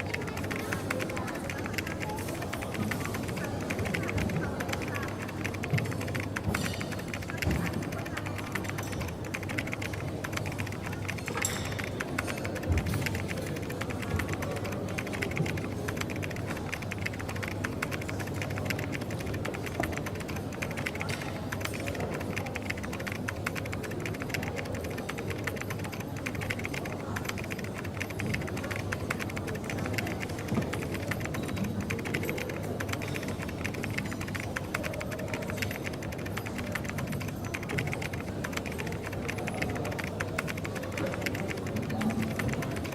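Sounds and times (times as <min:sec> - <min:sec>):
coffee shop background noise: 0:00.0 - 0:42.9
typing on computer keyboard: 0:00.0 - 0:42.9.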